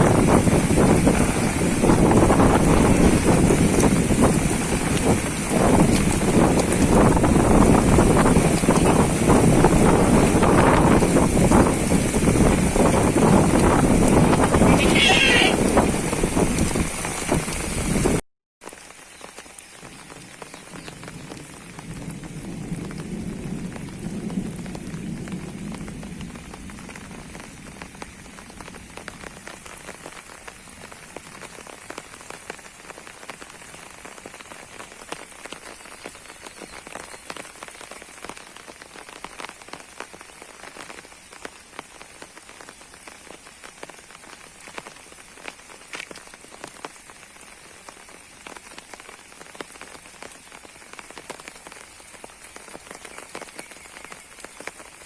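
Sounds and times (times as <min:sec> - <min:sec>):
heavy rain splattering: 0:00.0 - 0:55.0
loud noise: 0:14.4 - 0:15.7.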